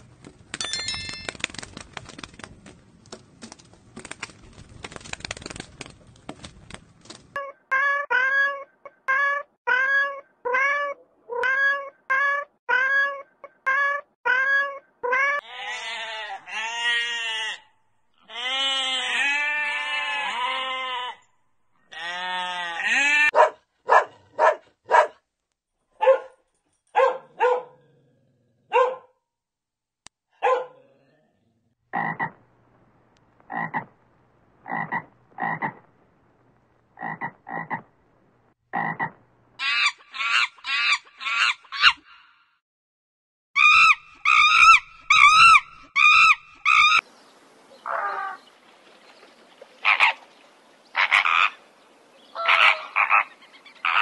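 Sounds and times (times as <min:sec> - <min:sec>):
drawn-out rising and falling calls: 0:39.6 - 0:42.3, 0:43.6 - 0:54.0.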